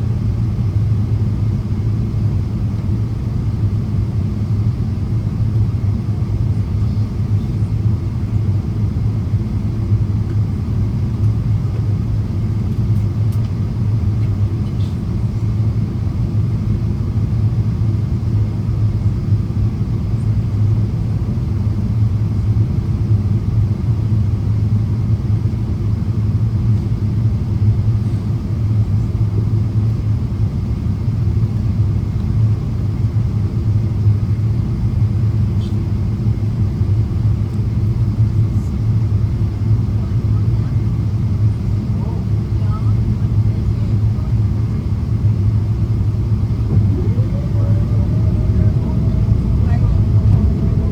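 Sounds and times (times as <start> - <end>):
airplane cabin drone: 0.0 - 50.9.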